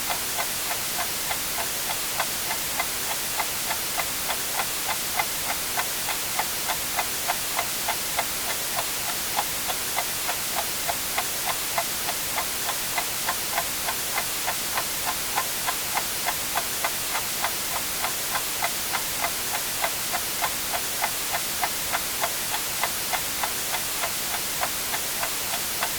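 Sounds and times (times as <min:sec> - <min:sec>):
white noise hiss: 0:00.0 - 0:25.9.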